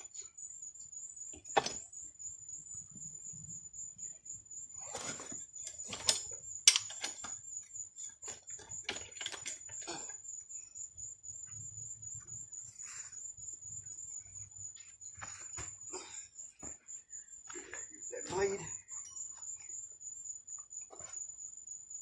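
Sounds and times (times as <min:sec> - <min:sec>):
sharp clicks and knocks of tools: 0:05.6 - 0:07.4.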